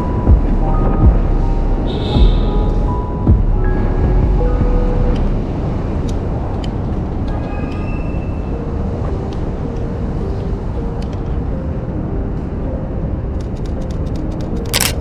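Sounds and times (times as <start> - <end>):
traffic rumbling: 0.0 - 15.0
sharp clicks: 13.4 - 15.0.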